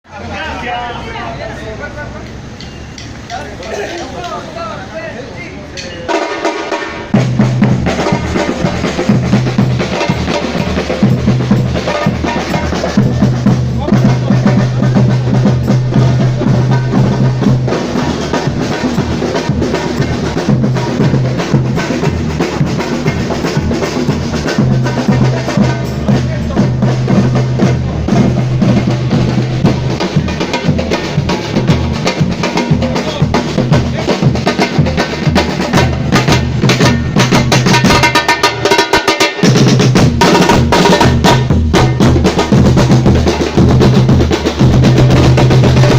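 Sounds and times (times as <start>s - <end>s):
hand percussion: 2.2s - 4.7s, 5.7s - 45.9s
snare drums: 2.2s - 45.9s
bass drums: 5.7s - 45.9s.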